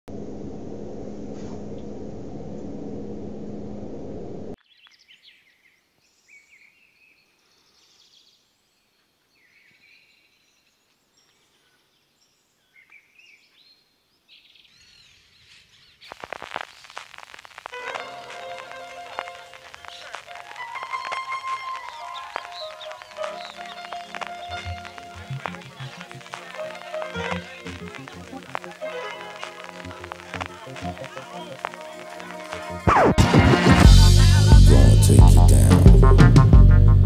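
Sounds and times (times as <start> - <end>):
noisy hum with low tone: 0.1 - 4.6
faint birds chirping: 4.6 - 32.6
music with a beat: 17.6 - 37.0.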